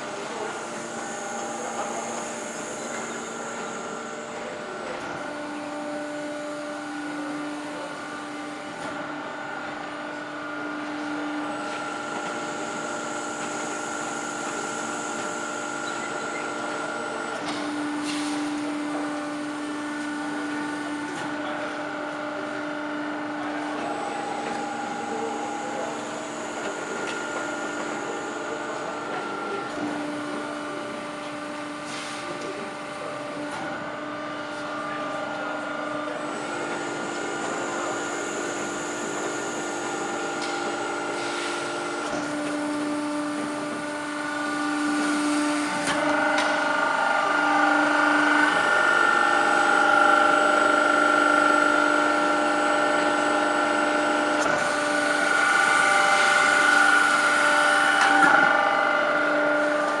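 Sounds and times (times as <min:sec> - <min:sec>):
production line machinery humming: 0:00.0 - 1:00.0.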